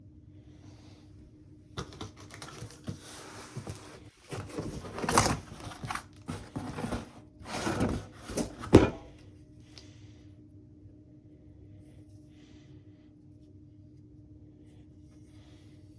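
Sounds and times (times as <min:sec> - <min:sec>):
packaging crinkling and rustling: 0:01.8 - 0:09.2.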